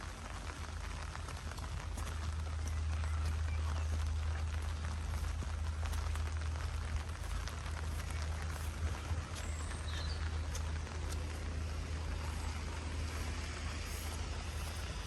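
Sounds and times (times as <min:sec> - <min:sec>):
low rumble: 0:00.0 - 0:15.0
rain falling on a street: 0:00.0 - 0:15.0.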